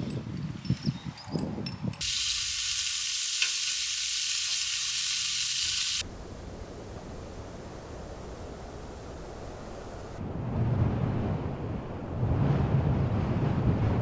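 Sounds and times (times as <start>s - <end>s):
food sizzling in a hot pan: 2.0s - 6.0s.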